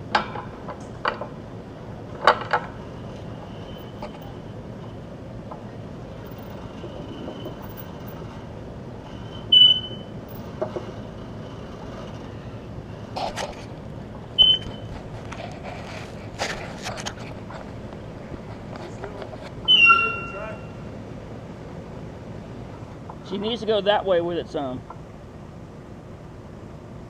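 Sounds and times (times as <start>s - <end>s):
hoisting gear metallic squeal: 2.8s - 5.2s, 5.8s - 13.2s, 19.6s - 20.8s.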